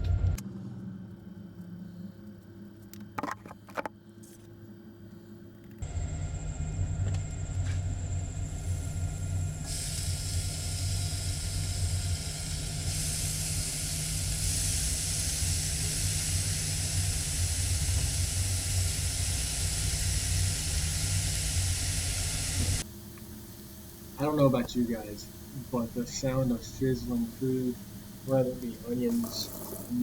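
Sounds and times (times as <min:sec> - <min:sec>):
stove burner low rumble: 0:04.0 - 0:30.0
food sizzling in a skillet: 0:23.6 - 0:30.0.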